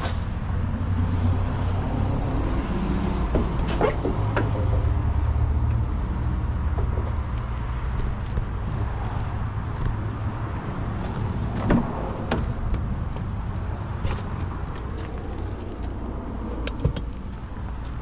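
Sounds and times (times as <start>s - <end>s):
sharp clicks and knocks: 3.3s - 4.9s.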